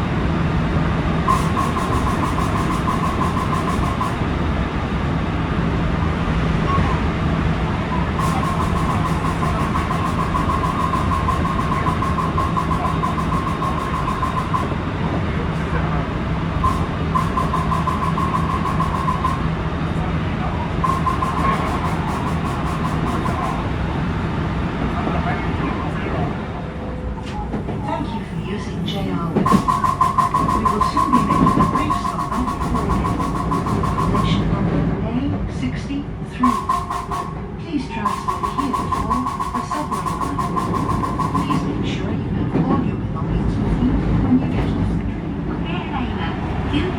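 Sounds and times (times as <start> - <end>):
rapid even clacking: 1.3 - 4.4, 8.2 - 14.8, 16.6 - 19.5, 20.8 - 23.6, 29.4 - 34.5, 36.4 - 37.5, 38.1 - 41.8
ringing tone: 1.3 - 4.5, 7.9 - 15.0, 16.6 - 19.6, 20.8 - 23.8, 29.5 - 34.5, 36.4 - 41.8.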